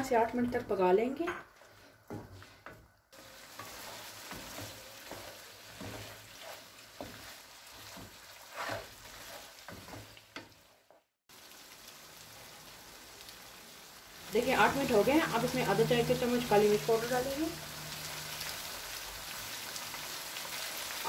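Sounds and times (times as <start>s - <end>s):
spatula scraping a pan: 1.5s - 11.0s
meat sizzling in gravy: 3.1s - 21.0s.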